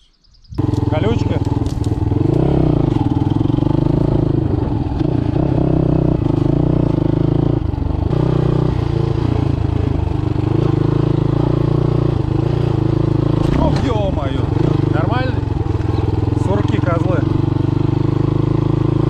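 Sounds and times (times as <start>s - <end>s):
motorcycle rattling: 0.4s - 19.0s
motorcycle engine revving: 0.5s - 19.0s.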